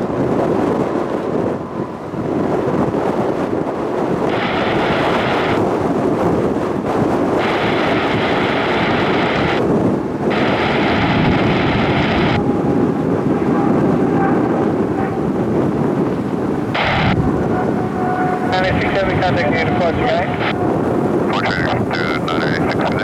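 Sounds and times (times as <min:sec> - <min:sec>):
jet engines rumbling: 0:00.0 - 0:23.0
radio hiss: 0:04.3 - 0:05.6, 0:07.4 - 0:09.6, 0:10.3 - 0:12.4, 0:16.8 - 0:17.2, 0:18.5 - 0:20.6, 0:21.3 - 0:23.0.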